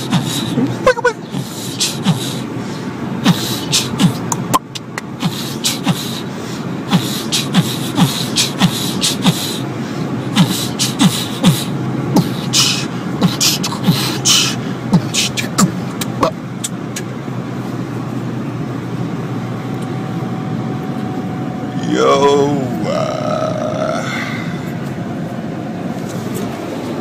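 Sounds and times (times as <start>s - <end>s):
man beatboxing: 0.0s - 2.5s, 3.2s - 6.2s, 6.9s - 9.6s, 10.2s - 17.1s, 21.8s - 24.4s
vehicle hum: 0.0s - 27.0s.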